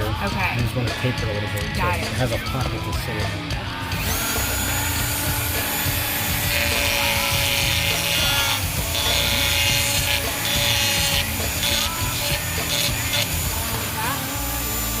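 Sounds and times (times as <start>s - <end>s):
power grinder rasping: 3.8s - 15.0s.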